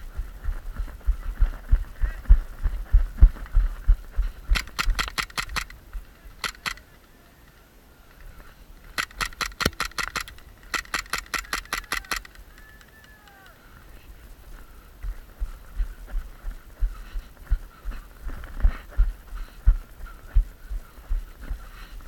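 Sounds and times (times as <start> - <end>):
rattling gear: 4.5 - 6.8, 8.8 - 12.9
airsoft gunfire cracks: 9.0 - 12.3.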